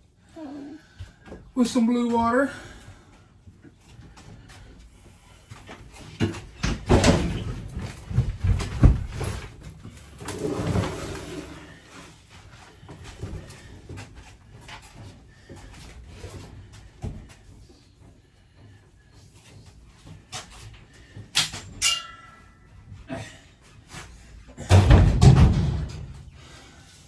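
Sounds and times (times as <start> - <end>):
sharp knocks and thumps: 24.6 - 26.3.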